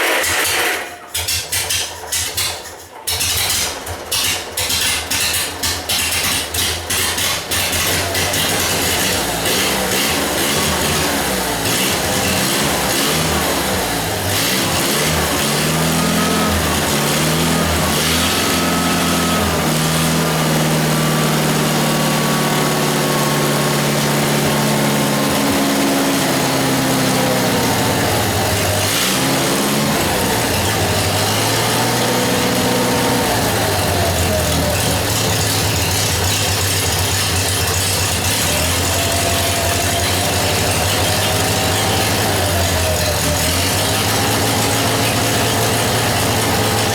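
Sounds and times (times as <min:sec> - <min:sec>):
welder engine running: 0:04.6 - 0:46.9.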